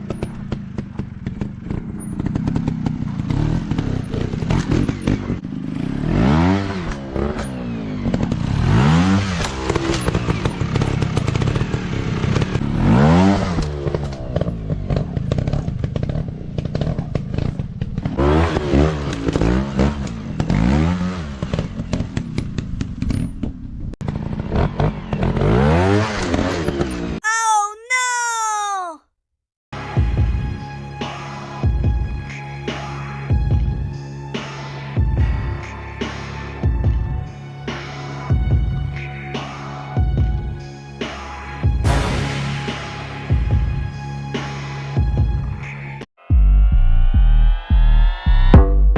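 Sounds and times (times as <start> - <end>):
motocross bike engine revving: 2.3 - 14.0.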